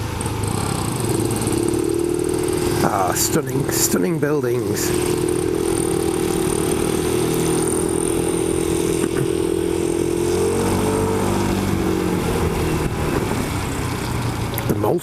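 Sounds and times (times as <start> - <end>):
motorcycle engine cruising: 0.0 - 15.0
wind and road noise: 0.0 - 15.0.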